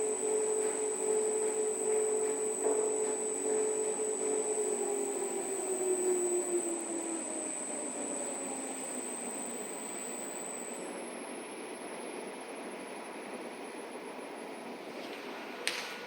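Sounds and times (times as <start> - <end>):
washing machine drum motor whining: 0.0 - 13.0.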